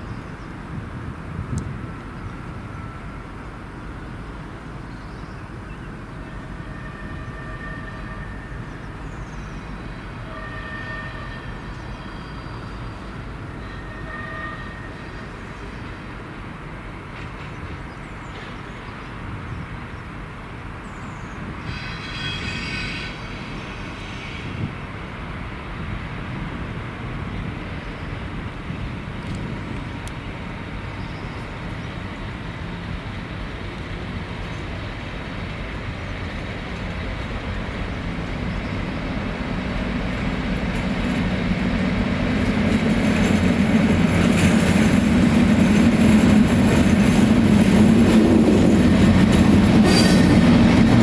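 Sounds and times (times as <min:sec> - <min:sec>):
train rumbling: 0:00.0 - 0:51.0
high-pitched squeal: 0:21.6 - 0:24.6, 0:49.8 - 0:50.7.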